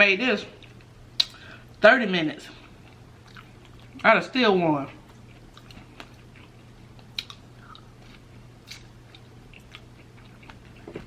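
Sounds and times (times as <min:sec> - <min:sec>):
faint low hum: 0:00.0 - 0:11.0
quiet chewing: 0:02.5 - 0:04.0, 0:05.0 - 0:11.0.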